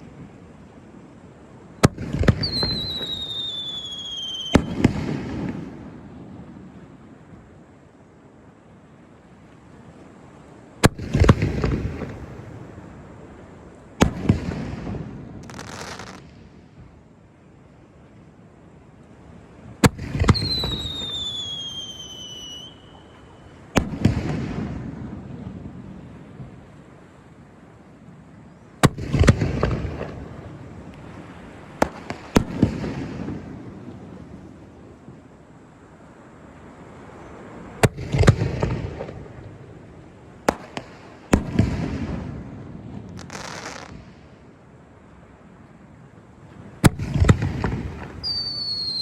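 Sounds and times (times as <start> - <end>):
high fireworks crackle: 0.0 - 7.4, 10.3 - 17.0, 19.6 - 49.0
fireworks rumble: 0.0 - 7.9, 9.5 - 17.4, 19.1 - 49.0
fireworks bangs: 1.8 - 5.8, 10.8 - 12.8, 14.0 - 16.4, 19.8 - 25.8, 28.8 - 33.9, 37.8 - 39.8, 40.4 - 44.3, 46.8 - 49.0.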